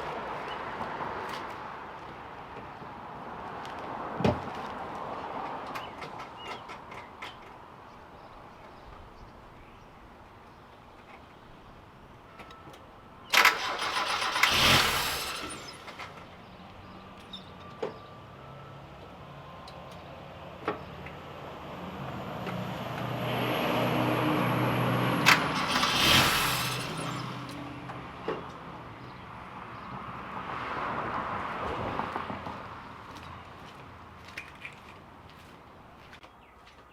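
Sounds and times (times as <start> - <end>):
car engine starting and revving: 13.3 - 16.3, 21.5 - 28.5
sharp clicks: 25.2 - 28.6.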